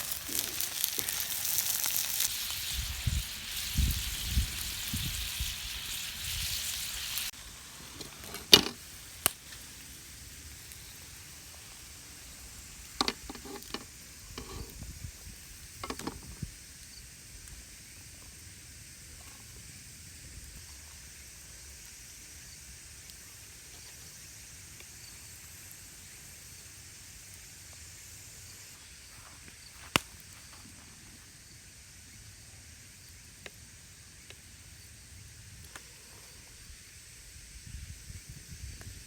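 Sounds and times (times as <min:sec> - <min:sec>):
food sizzling in a frying pan: 0:00.0 - 0:30.0.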